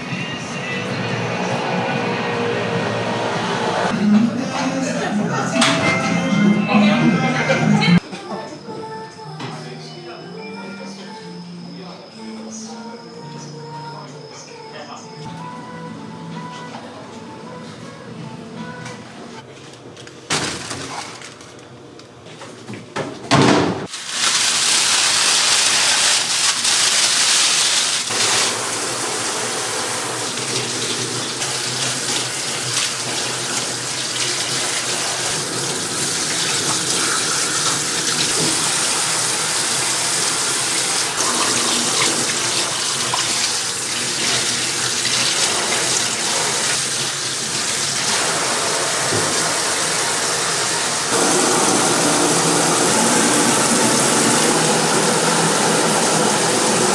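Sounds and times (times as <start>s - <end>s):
tap water running into sink: 23.9s - 56.9s.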